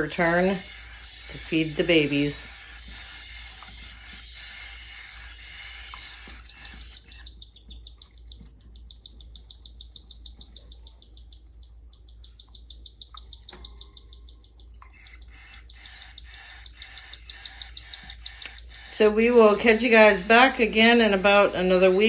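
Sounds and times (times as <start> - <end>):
chicks begging chirps: 0.0 - 22.0.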